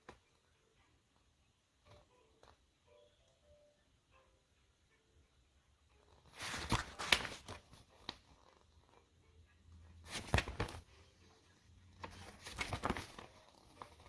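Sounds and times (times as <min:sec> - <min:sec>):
handling rustling and clicks: 0:06.0 - 0:09.0, 0:10.1 - 0:14.0.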